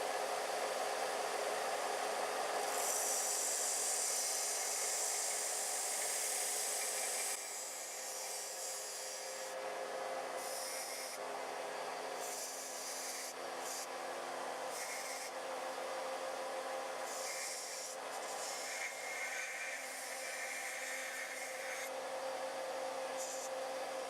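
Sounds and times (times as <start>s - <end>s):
blade grinding on belt: 14.7s - 15.4s, 17.0s - 21.9s.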